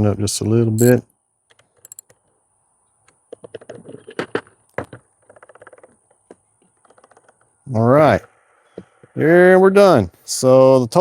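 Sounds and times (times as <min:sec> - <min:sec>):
small metal knocks: 0:00.8 - 0:01.0, 0:01.8 - 0:02.1.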